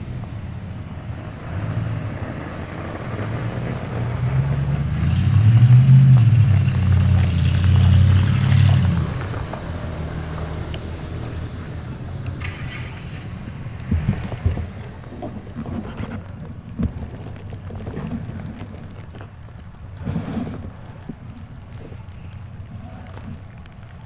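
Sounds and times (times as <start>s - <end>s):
vehicle engine rumbling past: 0.0s - 16.8s.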